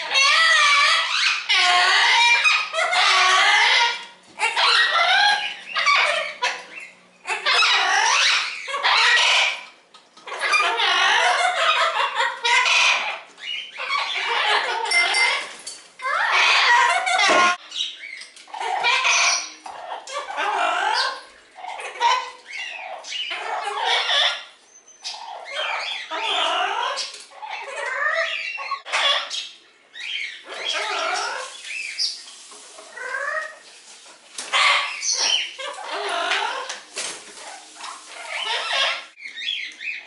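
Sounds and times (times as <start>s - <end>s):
parrots squawking and chattering: 0.0s - 40.0s.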